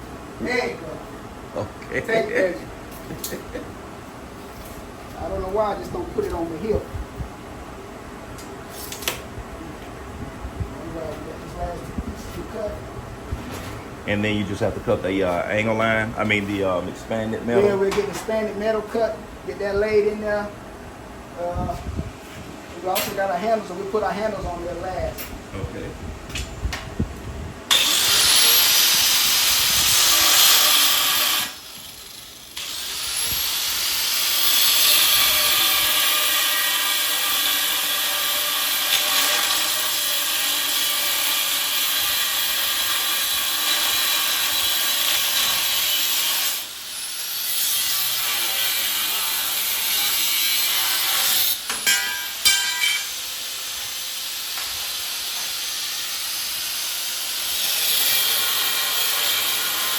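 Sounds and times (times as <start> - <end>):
cut-off wheel cutting metal: 27.7 - 59.9.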